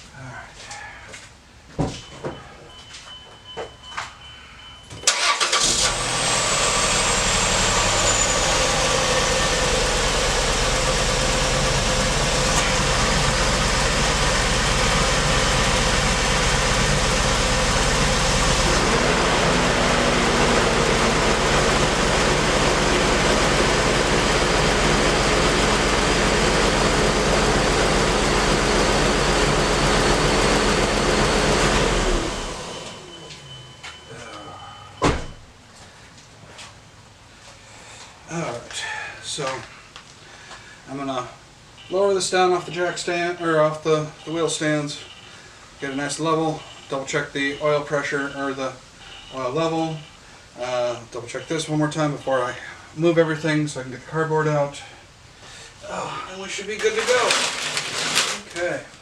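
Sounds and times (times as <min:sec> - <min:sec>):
car engine idling: 0:05.1 - 0:33.1.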